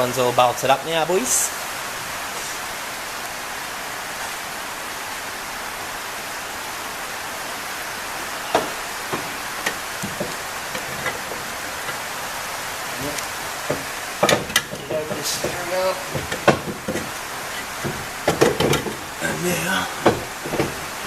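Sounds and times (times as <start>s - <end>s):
steady rain: 0.0s - 21.0s
sharp knocks and clicks: 8.5s - 12.3s, 12.9s - 21.0s.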